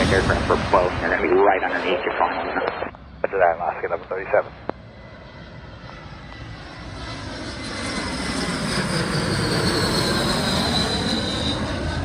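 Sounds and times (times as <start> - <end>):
high jet engine whine: 0.0 - 12.0
jet airliner engine noise: 0.0 - 12.0.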